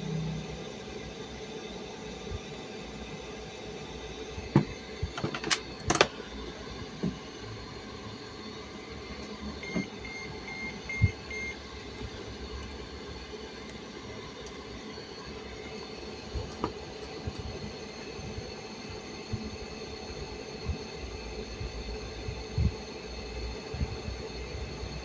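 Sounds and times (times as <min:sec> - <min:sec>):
sharp clicks and knocks: 0:04.5 - 0:06.2
short high beeps: 0:09.6 - 0:11.6.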